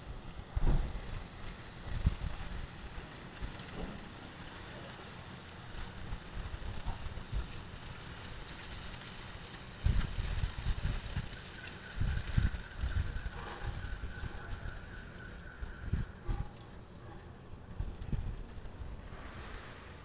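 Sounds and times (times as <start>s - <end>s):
strong wind buffeting microphone: 0.0s - 3.9s, 9.8s - 16.6s, 17.6s - 20.0s.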